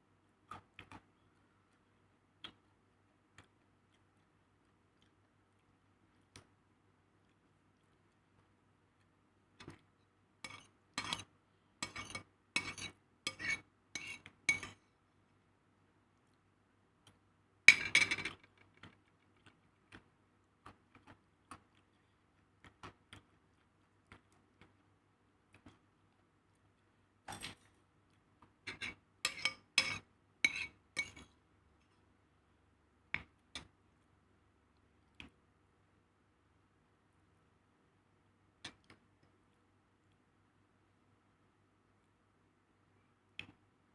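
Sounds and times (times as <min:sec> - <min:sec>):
cutlery clinking on a plate: 0:28.7 - 0:31.3.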